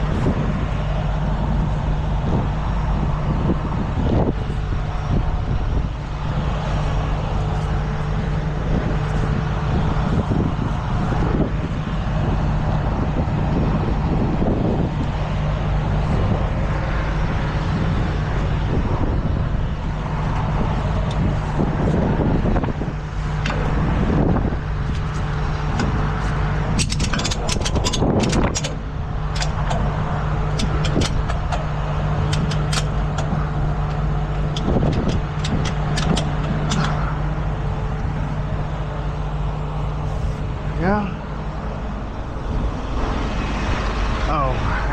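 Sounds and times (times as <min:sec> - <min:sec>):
truck engine idling: 0:00.0 - 0:44.9
metallic clicks and clanks: 0:24.8 - 0:38.1.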